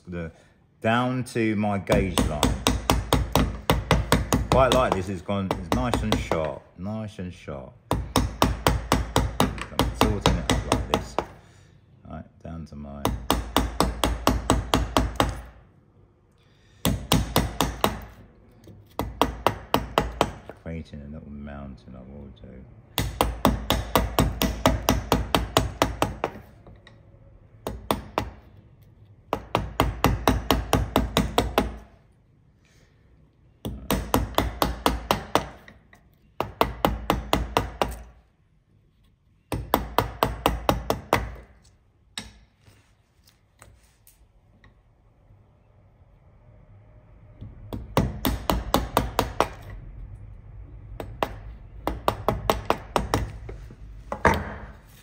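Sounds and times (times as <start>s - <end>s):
mallet striking chisel into wood: 1.9s - 6.6s, 7.9s - 11.4s, 13.0s - 15.6s, 16.8s - 20.6s, 23.0s - 26.9s, 27.6s - 28.5s, 29.3s - 31.9s, 33.6s - 35.8s, 36.4s - 38.2s, 39.5s - 42.5s, 47.7s - 49.7s, 51.0s - 54.8s.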